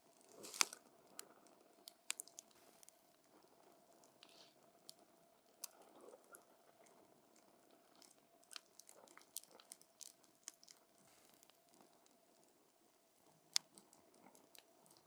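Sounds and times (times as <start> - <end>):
soft fire hiss: 0.0 - 7.1, 10.8 - 15.0
campfire crackling: 0.2 - 4.1
sharp pops and snaps: 0.3 - 1.3, 1.9 - 3.0, 13.5 - 15.0.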